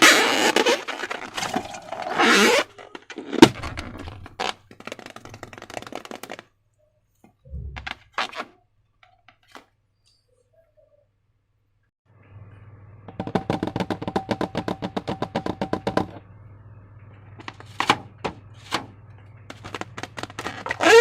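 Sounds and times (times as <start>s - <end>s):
soft low thump: 7.5s - 8.0s.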